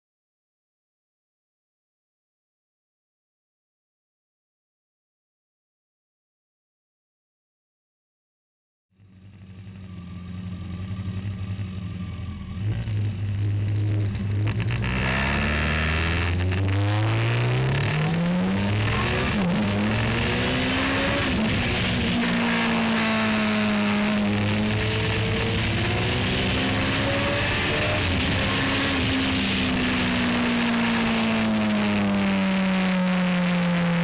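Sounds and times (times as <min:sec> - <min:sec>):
road noise: 0:09.0 - 0:34.0
vehicle engine accelerating: 0:09.0 - 0:34.0.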